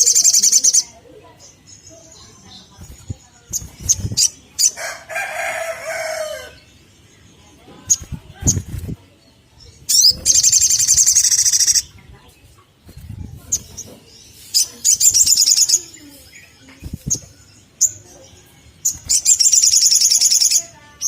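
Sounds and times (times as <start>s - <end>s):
bird trilling and chirping: 0.0s - 21.0s.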